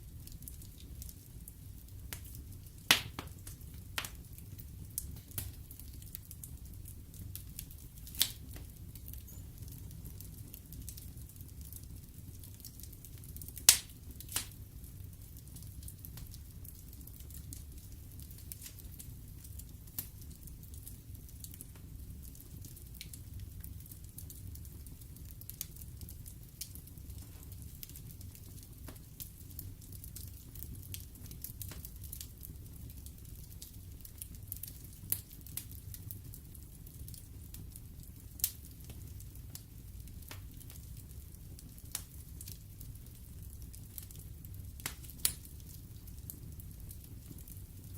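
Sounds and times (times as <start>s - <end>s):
wood fire crackling: 0.0s - 47.9s
loud sharp fire pops: 2.9s - 4.2s, 13.6s - 14.6s.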